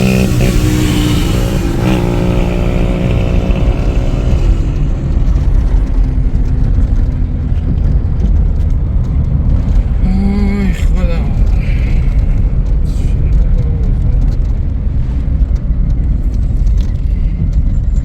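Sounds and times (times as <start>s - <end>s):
car engine drone: 0.0s - 18.0s
road noise rumble: 0.0s - 18.0s.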